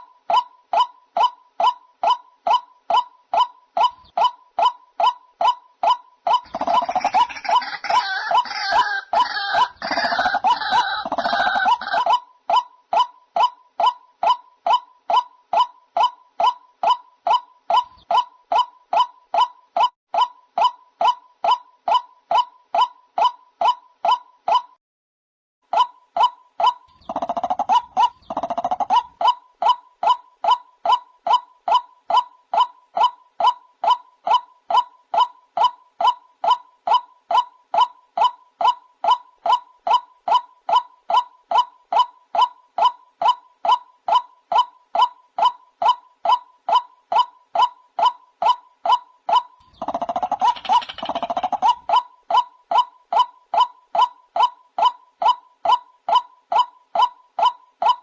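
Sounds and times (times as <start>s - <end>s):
harsh rough bird calling: 0.0s - 20.0s, 26.6s - 30.2s, 47.6s - 58.0s.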